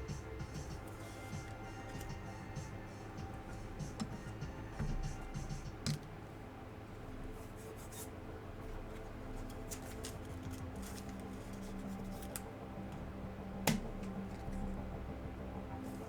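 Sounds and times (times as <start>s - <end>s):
faint background music: 0.0s - 16.0s
cards clicking and crinkling: 0.7s - 2.3s, 8.9s - 13.0s, 13.7s - 14.7s
card snapping: 13.7s - 14.5s.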